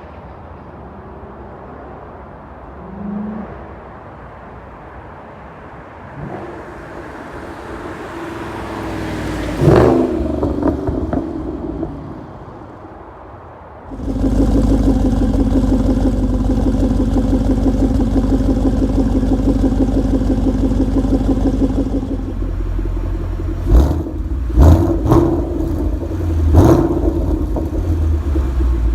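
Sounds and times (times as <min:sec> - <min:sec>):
car engine revving: 0:06.1 - 0:12.5, 0:13.9 - 0:28.9.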